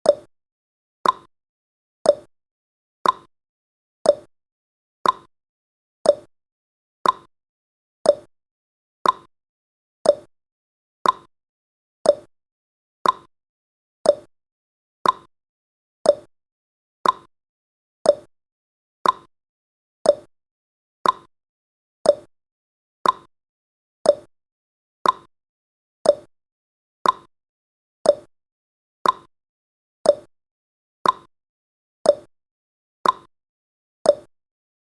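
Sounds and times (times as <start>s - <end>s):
timer ticking: 0.0s - 0.3s, 1.0s - 1.3s, 2.0s - 2.3s, 3.0s - 3.3s, 4.0s - 4.3s, 5.0s - 5.3s, 6.0s - 6.3s, 7.0s - 7.3s, 8.0s - 8.3s, 9.0s - 9.3s, 10.0s - 10.3s, 11.0s - 11.3s, 12.0s - 12.3s, 13.0s - 13.3s, 14.0s - 14.3s, 15.0s - 15.3s, 16.0s - 16.3s, 17.0s - 17.3s, 18.0s - 18.3s, 19.0s - 19.3s, 20.0s - 20.3s, 21.0s - 21.3s, 22.0s - 22.3s, 23.0s - 23.3s, 24.0s - 24.3s, 25.0s - 25.3s, 26.0s - 26.3s, 27.0s - 27.3s, 28.0s - 28.3s, 29.0s - 29.3s, 30.0s - 30.3s, 31.0s - 31.3s, 32.0s - 32.3s, 33.0s - 33.3s, 34.1s - 34.3s.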